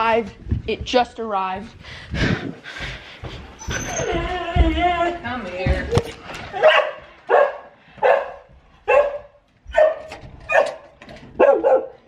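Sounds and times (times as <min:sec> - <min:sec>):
dog barking: 0:06.6 - 0:12.0.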